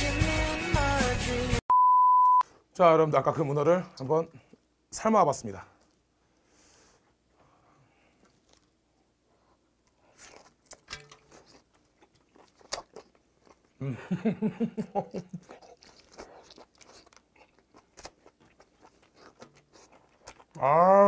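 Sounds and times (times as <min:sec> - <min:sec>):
person chewing food: 0:07.9 - 0:13.8, 0:14.9 - 0:20.7.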